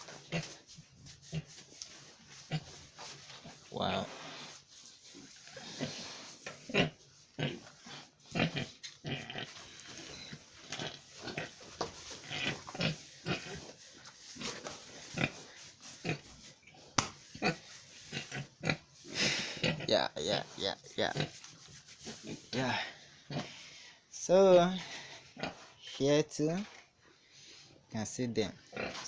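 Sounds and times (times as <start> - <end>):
pigs grunting: 5.5 - 11.6, 12.2 - 13.7, 14.4 - 16.3, 17.4 - 21.4, 28.6 - 29.0.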